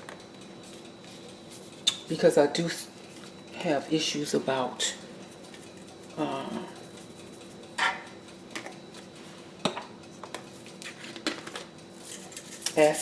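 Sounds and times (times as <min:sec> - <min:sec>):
utensil clinking and scraping dish: 0:10.8 - 0:13.0.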